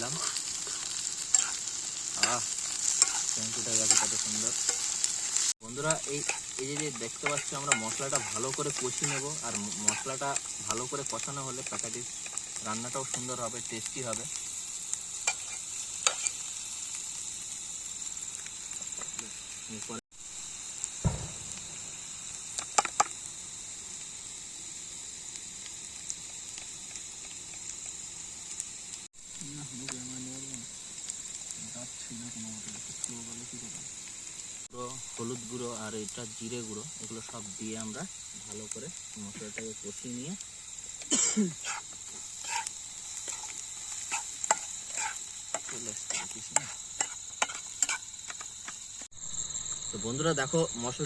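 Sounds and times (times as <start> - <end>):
utensil scraping a pan: 0.0 - 10.8, 15.3 - 16.4, 41.6 - 48.1
crickets droning: 0.0 - 51.0
masala sizzling in hot oil: 0.0 - 51.0
spices frying in a pan: 0.0 - 51.0
low thump: 21.0 - 22.0.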